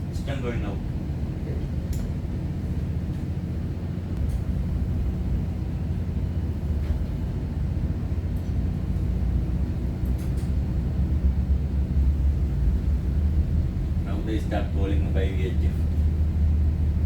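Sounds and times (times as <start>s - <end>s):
ship engine low rumble: 0.0s - 17.0s.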